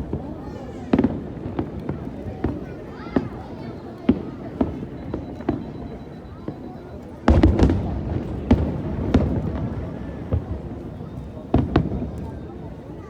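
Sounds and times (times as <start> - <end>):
fireworks bursting: 7.3 - 10.8.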